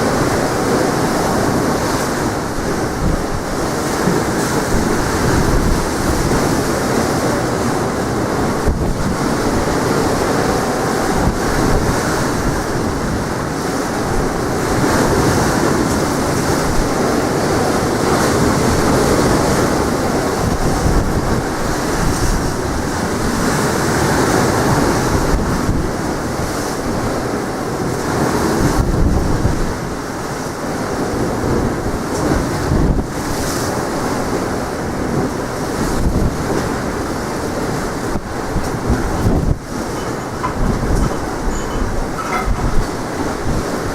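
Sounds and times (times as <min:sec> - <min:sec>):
sea waves washing onto shore: 0:00.0 - 0:43.9
wind buffeting microphone: 0:00.0 - 0:43.9.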